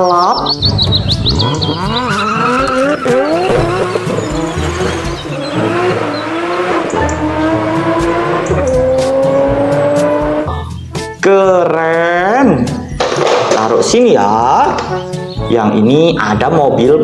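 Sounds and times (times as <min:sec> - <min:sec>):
car engine accelerating hard: 0:00.5 - 0:10.6.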